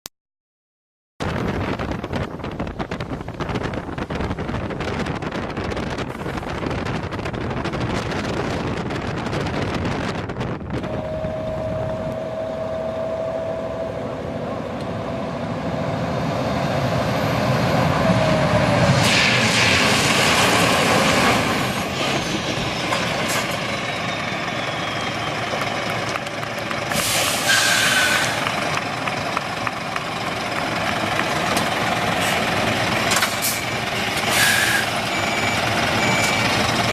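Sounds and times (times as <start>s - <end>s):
truck engine running: 1.4s - 36.9s
steady whistle: 10.8s - 14.3s, 23.4s - 26.0s
air brake hiss: 26.9s - 28.4s, 33.3s - 35.0s.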